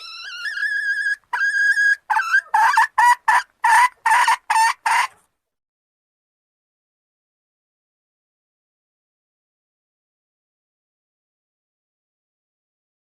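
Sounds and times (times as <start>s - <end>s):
hen calling and cackling: 0.0s - 5.3s.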